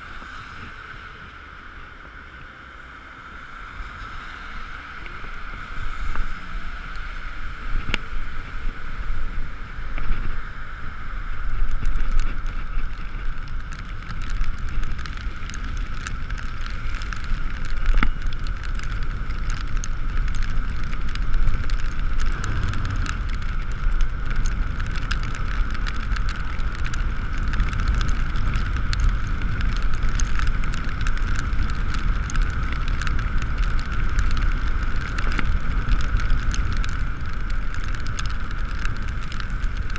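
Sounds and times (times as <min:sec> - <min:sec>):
road rumble: 0:00.0 - 0:39.9
wind noise: 0:03.4 - 0:39.9
dense fine ticking: 0:11.4 - 0:39.9.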